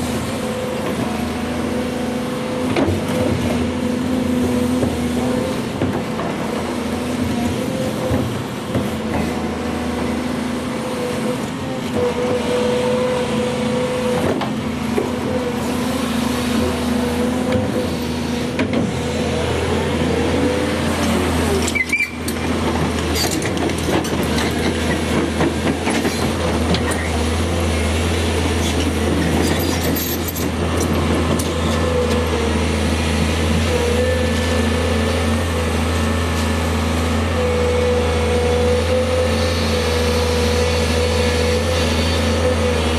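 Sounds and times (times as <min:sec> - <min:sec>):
excavator diesel engine running: 0:00.0 - 0:42.9
hydraulic whine: 0:10.7 - 0:25.2.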